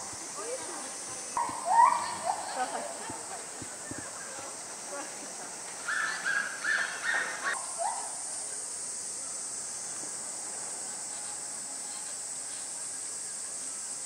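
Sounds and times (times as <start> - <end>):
steady high hiss: 0.0 - 14.0.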